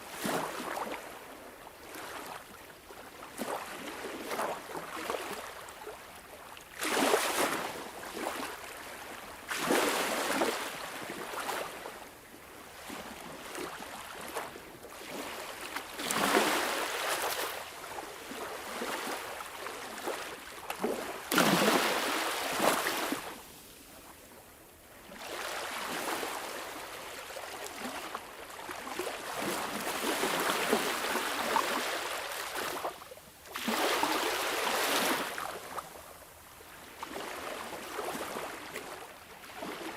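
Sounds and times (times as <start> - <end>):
sea waves washing on shore: 14.6 - 23.7.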